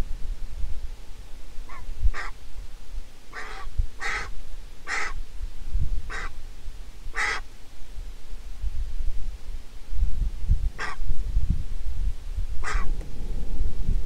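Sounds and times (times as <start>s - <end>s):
harsh bird calls: 3.3s - 4.3s, 4.9s - 5.2s, 6.1s - 6.4s, 7.2s - 7.4s, 10.8s - 11.0s, 12.6s - 13.0s
low rumble: 10.1s - 14.0s.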